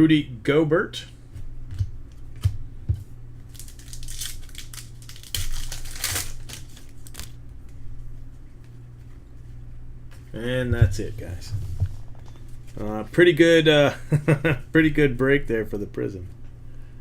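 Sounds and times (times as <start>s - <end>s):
wrappers crinkling: 3.4s - 7.4s.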